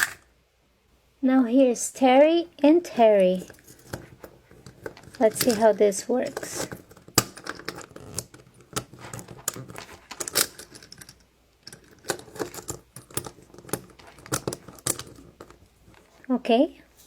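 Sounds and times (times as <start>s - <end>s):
plastic toy parts clicking: 0.0s - 0.2s, 4.7s - 15.6s.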